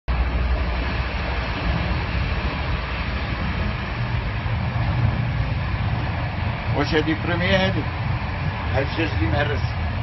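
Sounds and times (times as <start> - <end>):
train rumble inside carriage: 0.1 - 10.0.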